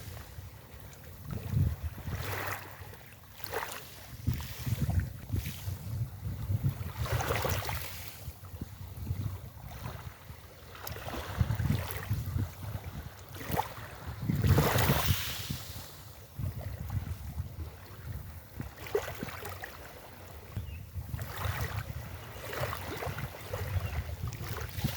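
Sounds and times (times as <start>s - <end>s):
wind buffeting microphone: 0.0s - 2.7s, 4.0s - 19.4s, 20.1s - 24.9s
sea waves washing onto beach: 13.2s - 16.2s.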